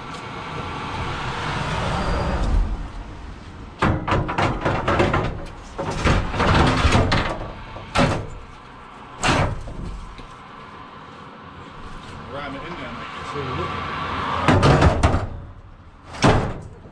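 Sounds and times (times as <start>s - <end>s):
clattering knocks: 3.8s - 8.5s, 14.5s - 15.6s
sharp slams: 9.2s - 9.9s, 14.4s - 16.8s.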